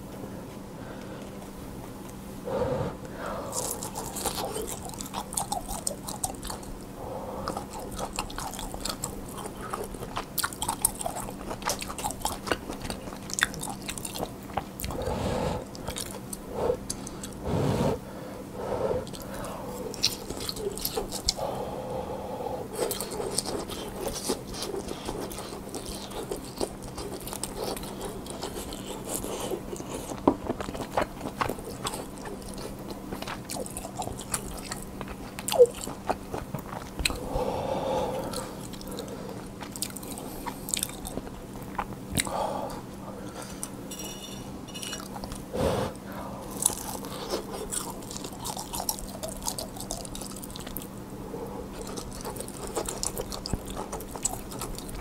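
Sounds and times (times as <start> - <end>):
wet chewing and mouth smacks: 3.6 - 6.8, 7.5 - 15.0, 19.0 - 21.4, 22.8 - 37.2, 38.2 - 42.4, 46.5 - 50.9, 51.7 - 55.0.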